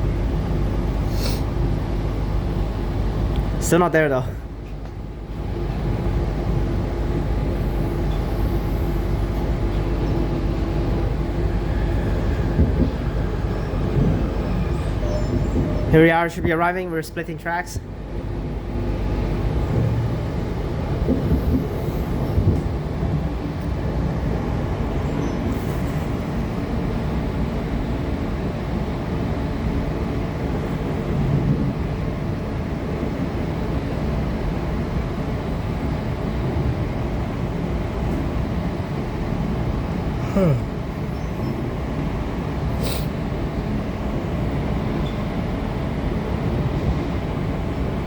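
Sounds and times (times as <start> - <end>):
train wheels rumbling on rails: 0.0 - 48.0
steady hum: 34.4 - 43.8.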